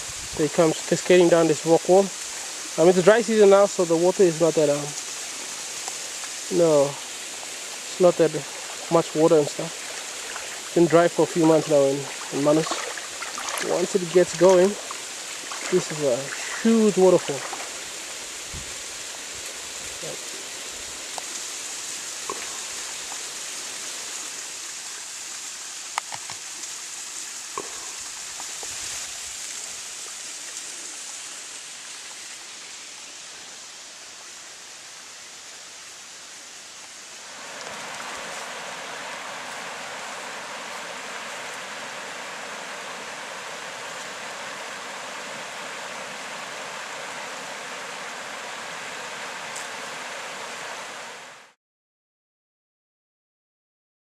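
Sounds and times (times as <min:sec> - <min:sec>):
waterfall rushing: 0:00.0 - 0:51.6.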